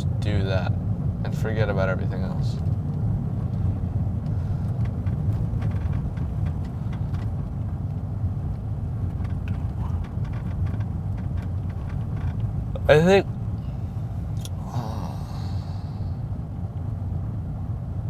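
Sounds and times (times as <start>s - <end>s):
car engine and road noise: 0.0s - 18.0s
faint light ticks: 2.6s - 12.7s.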